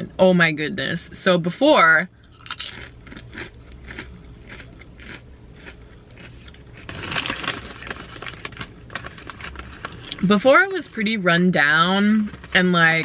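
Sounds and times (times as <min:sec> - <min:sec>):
person chewing crunchy chips: 0:02.2 - 0:10.2, 0:11.6 - 0:13.0.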